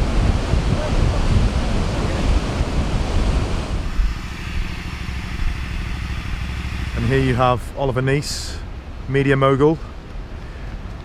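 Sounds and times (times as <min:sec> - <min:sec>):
wind buffeting microphone: 0:00.0 - 0:11.0
steady low hum: 0:01.6 - 0:09.2.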